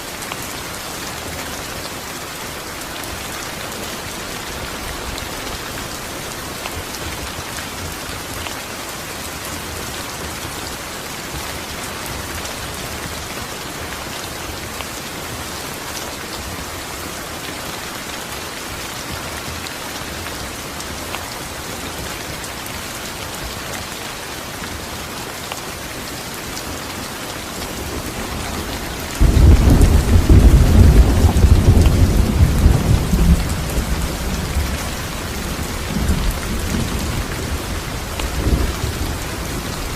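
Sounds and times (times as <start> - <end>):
steady rain falling: 0.0 - 39.9
thunder clap and rumble: 28.0 - 39.9.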